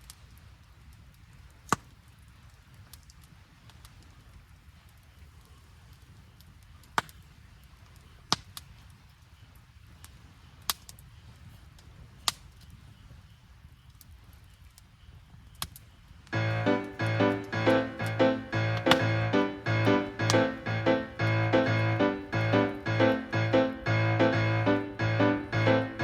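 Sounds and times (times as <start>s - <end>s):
piano background music: 16.4s - 26.0s.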